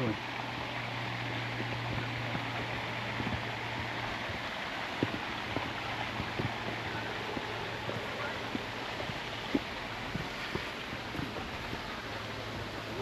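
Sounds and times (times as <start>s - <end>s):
steady rushing hiss: 0.0s - 13.0s
footsteps on dirt and rock: 5.0s - 12.0s.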